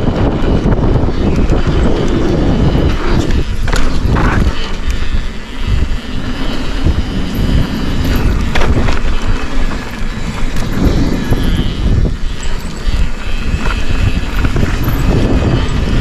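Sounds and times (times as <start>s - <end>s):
bike knocking and rattling: 0.0s - 16.0s
bike tyres rolling over trail: 0.0s - 16.0s
wind rumbling on microphone: 0.0s - 16.0s.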